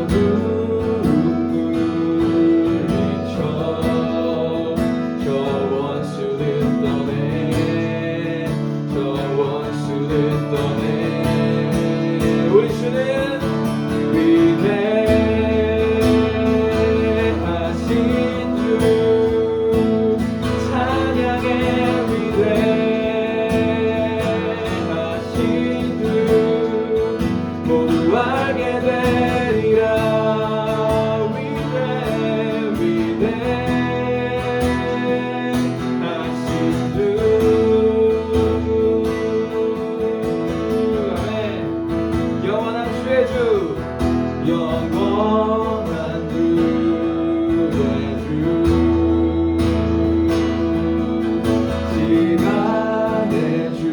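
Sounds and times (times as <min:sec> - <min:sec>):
acoustic guitar: 0:00.0 - 0:53.9
people singing worship song: 0:00.0 - 0:53.9.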